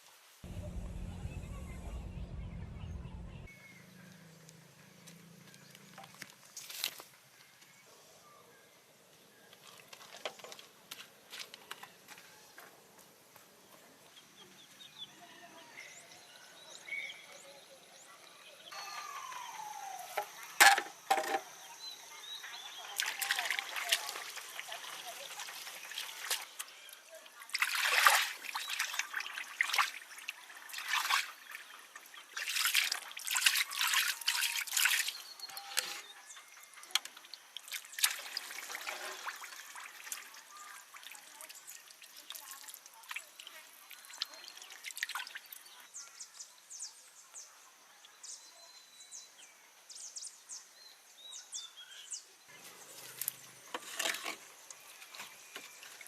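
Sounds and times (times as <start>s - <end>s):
water pouring and splashing: 22.8s - 35.5s, 36.9s - 45.8s, 52.8s - 56.0s
faint water trickle: 36.6s - 46.4s.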